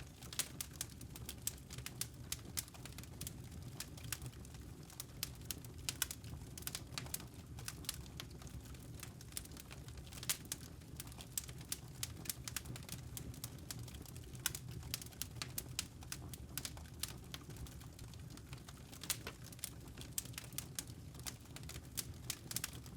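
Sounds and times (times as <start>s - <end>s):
wood fire pops and crackles: 0.0s - 22.9s.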